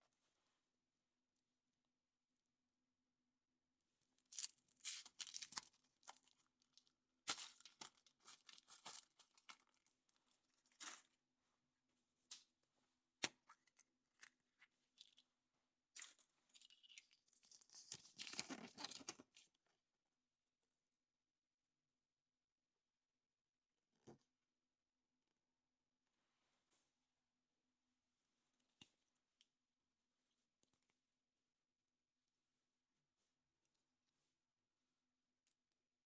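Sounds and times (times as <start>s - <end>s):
foil wrapper crinkling: 4.4s - 6.3s, 7.3s - 9.8s.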